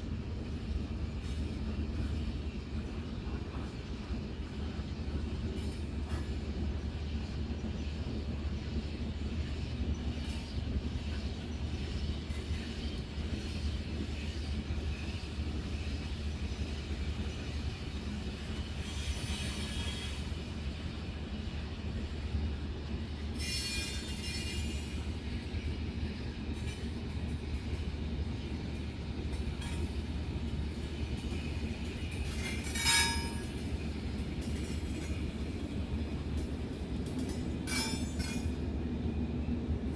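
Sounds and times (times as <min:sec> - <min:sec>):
freight train wagons rumbling: 0:00.0 - 0:39.9
steel wheels squealing: 0:17.2 - 0:20.7, 0:23.2 - 0:25.1.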